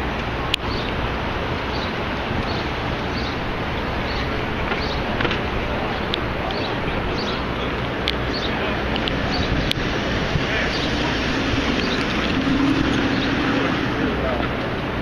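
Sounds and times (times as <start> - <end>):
traffic hum: 0.0 - 15.0
crowd hum: 6.9 - 15.0
high chirps: 8.3 - 14.3.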